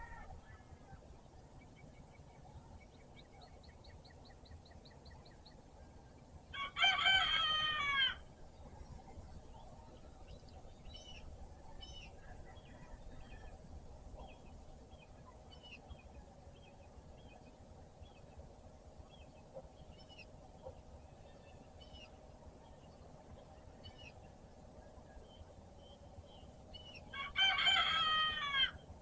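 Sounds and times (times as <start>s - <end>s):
rooster crowing: 0.0s - 0.9s, 6.5s - 8.3s, 27.1s - 28.8s
small birds trilling and chirping: 0.0s - 29.0s.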